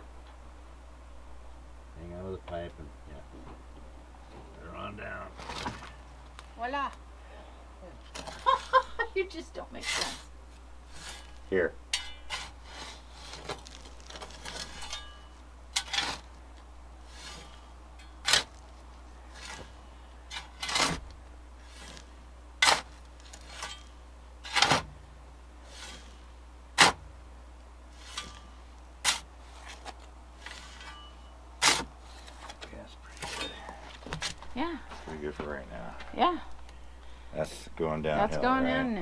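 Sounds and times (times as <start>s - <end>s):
shovel scraping dirt: 8.1s - 9.0s, 9.8s - 10.3s, 10.9s - 16.4s, 17.0s - 27.0s, 27.9s - 34.6s.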